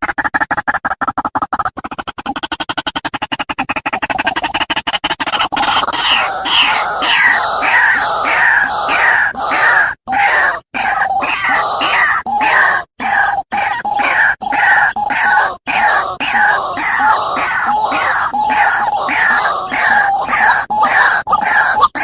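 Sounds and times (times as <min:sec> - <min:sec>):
waterhen calling: 0:05.3 - 0:22.0.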